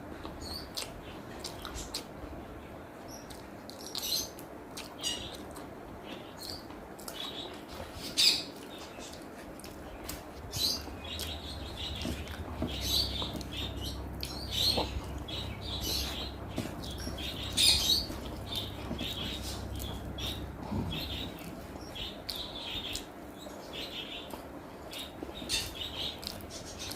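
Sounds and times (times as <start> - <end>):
chewing: 4.7 - 5.7, 7.0 - 10.4, 11.1 - 23.1, 26.2 - 26.9
wet lip-smacking: 26.2 - 26.4.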